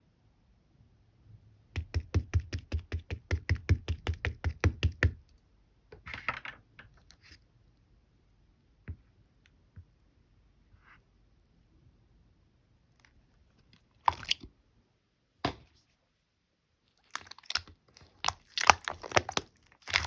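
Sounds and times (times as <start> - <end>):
fingers tapping on slime: 1.8 - 5.2.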